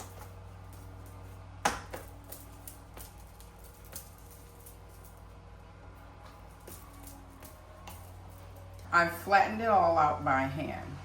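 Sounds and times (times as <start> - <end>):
hands patting dough: 0.0 - 5.1.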